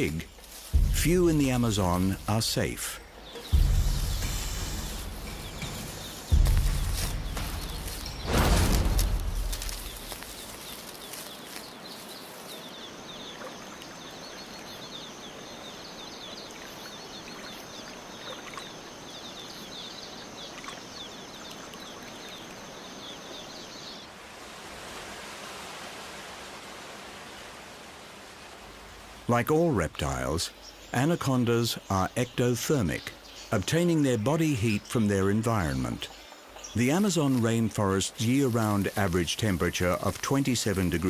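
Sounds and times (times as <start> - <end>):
steady hiss: 0.0 - 13.2, 22.6 - 41.0.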